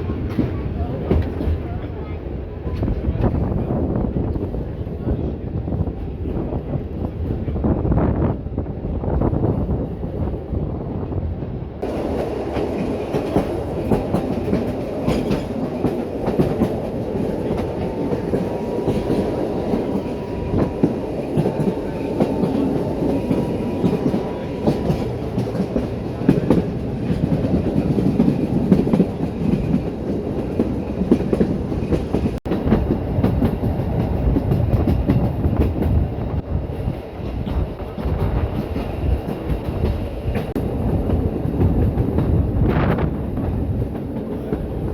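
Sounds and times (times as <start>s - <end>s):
steam train running: 0.0s - 44.9s
wheels clacking over rail joints: 11.8s - 36.1s.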